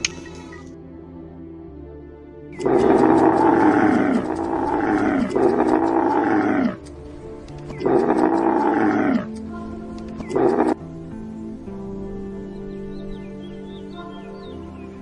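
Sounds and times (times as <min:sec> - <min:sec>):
background music: 0:00.0 - 0:15.0
animal calling loudly: 0:02.6 - 0:06.8, 0:07.7 - 0:09.3, 0:10.2 - 0:10.8.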